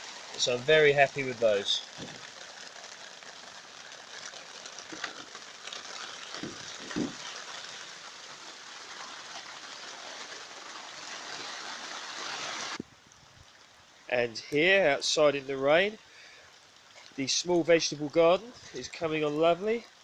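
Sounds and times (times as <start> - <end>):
heavy rain on plastic cover: 0.0 - 20.0
low thumps: 6.4 - 7.2.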